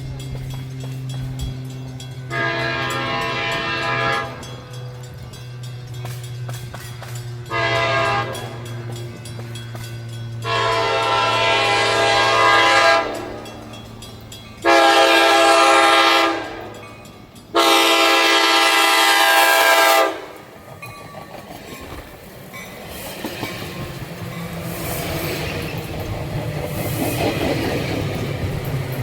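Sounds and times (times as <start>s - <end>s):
train rumble and rail clatter: 0.0s - 29.0s
train horn blasts: 2.2s - 4.7s, 7.4s - 9.0s, 10.4s - 13.6s, 14.6s - 20.6s.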